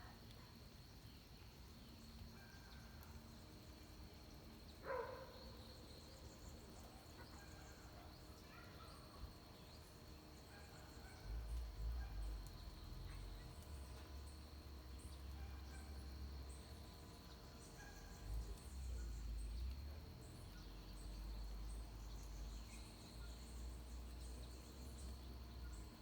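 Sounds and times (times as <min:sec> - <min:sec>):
insect drone: 0:00.3 - 0:26.0
distant bird calls: 0:04.7 - 0:14.3.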